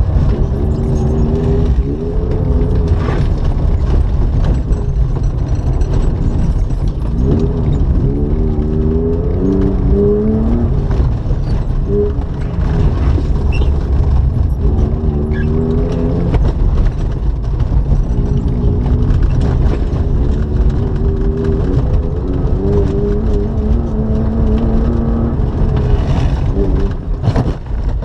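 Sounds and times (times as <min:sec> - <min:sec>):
car engine revving: 0:00.0 - 0:28.0
tyres rumbling on gravel: 0:00.0 - 0:28.0.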